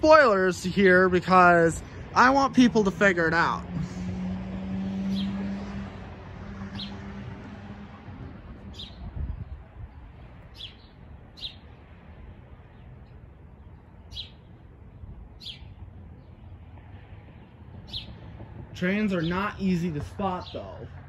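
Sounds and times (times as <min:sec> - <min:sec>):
highway traffic rumble: 0:00.0 - 0:21.0
small bird chirping: 0:10.5 - 0:11.7, 0:14.0 - 0:14.6, 0:15.4 - 0:16.4.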